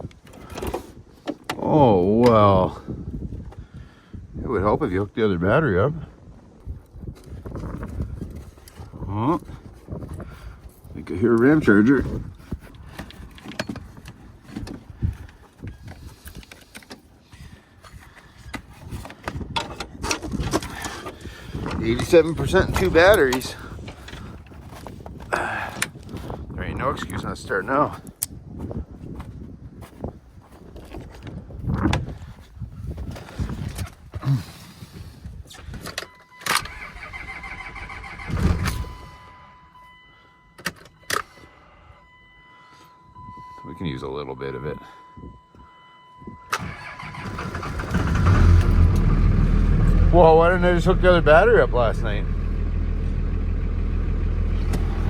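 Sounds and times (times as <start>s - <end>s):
engine cranking: 36.5s - 39.0s, 46.5s - 55.0s.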